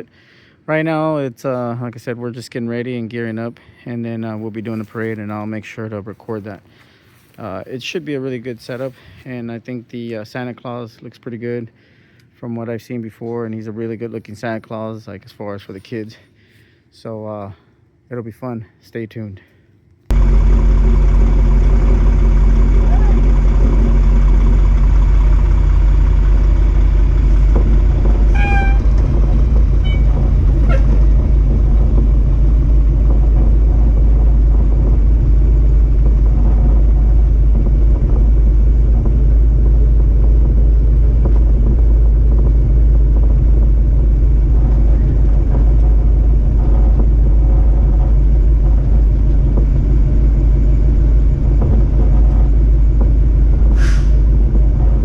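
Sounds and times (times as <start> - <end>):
truck engine low rumble: 0.0 - 15.2, 20.1 - 55.0.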